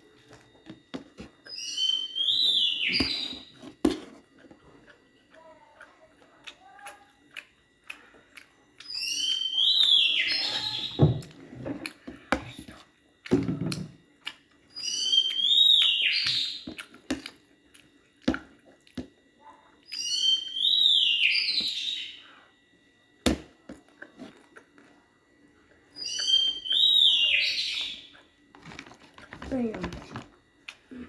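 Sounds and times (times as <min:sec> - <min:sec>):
bird whistling call: 0:01.5 - 0:03.4, 0:08.9 - 0:11.0, 0:26.0 - 0:28.1.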